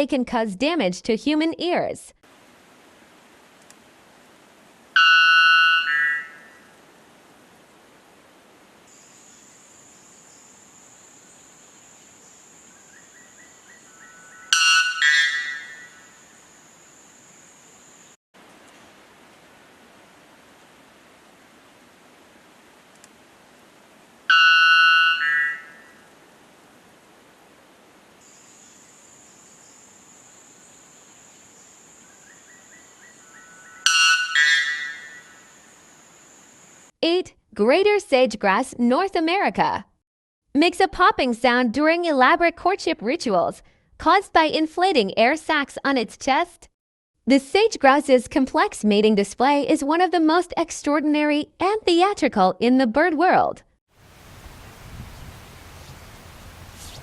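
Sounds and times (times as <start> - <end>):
bird calling ringing blasts: 5.0 - 6.8, 12.9 - 16.4, 24.3 - 26.1, 32.2 - 35.8
thin high tone: 33.8 - 35.5.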